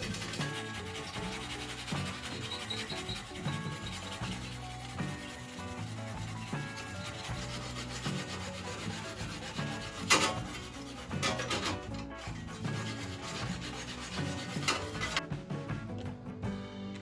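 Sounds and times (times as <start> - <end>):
abrasive rubbing and scraping: 0.0 - 15.2
background music with held notes: 0.0 - 17.0.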